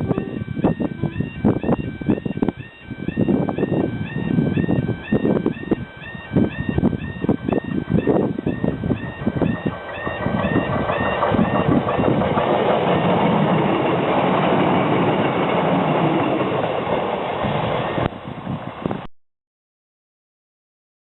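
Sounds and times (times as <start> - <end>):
level crossing alarm warbling: 0.0 - 18.1
diesel train engine: 0.0 - 19.1
train wheels clattering: 9.6 - 18.0.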